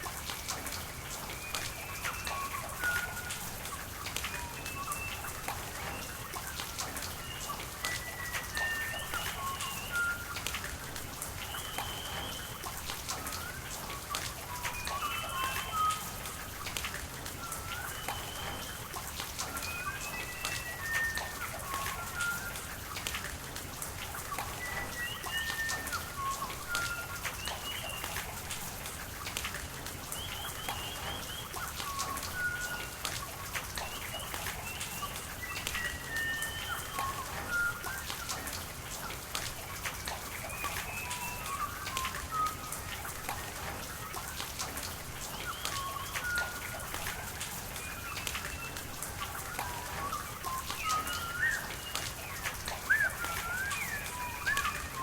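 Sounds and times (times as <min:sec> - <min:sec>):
steady rain with drop ticks: 0:00.0 - 0:55.0
birds chirping and whistling: 0:07.1 - 0:10.4, 0:11.4 - 0:16.2, 0:17.4 - 0:22.6, 0:30.2 - 0:33.0, 0:33.8 - 0:38.5, 0:40.0 - 0:43.0, 0:45.2 - 0:55.0.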